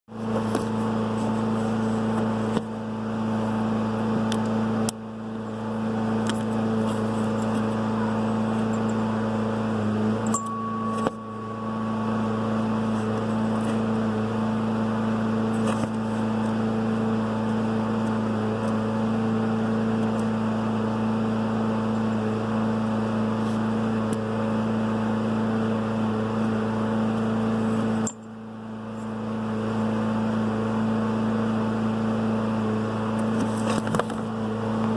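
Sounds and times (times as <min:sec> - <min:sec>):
car engine idling: 0:00.2 - 0:18.8.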